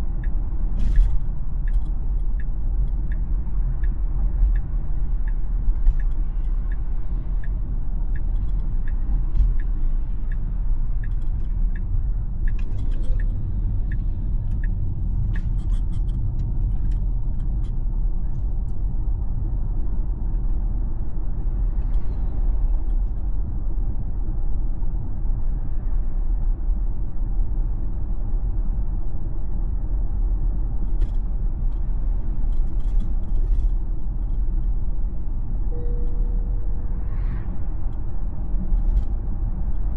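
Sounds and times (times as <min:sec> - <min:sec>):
turn signal ticking: 0:00.0 - 0:20.8
road and tyre rumble: 0:00.0 - 0:39.9.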